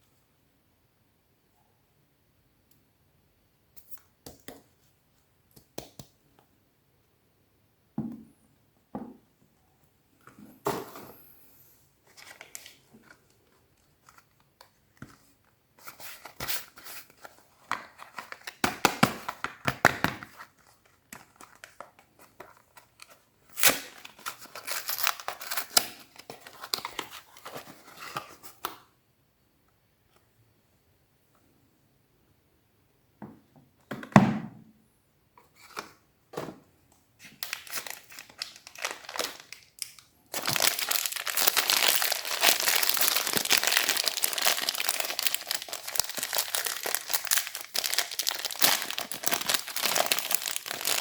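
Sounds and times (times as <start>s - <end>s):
packaging tearing and crinkling: 23.5s - 27.5s, 37.4s - 51.0s.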